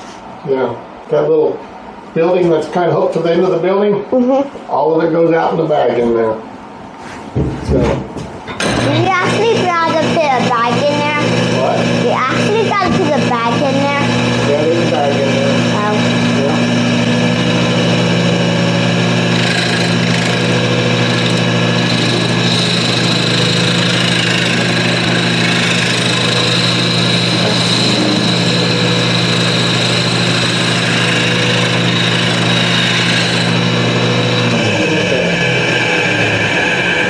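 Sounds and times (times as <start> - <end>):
wood lathe and dust collector hum: 8.6 - 37.0
turning tool cutting wood: 8.7 - 37.0.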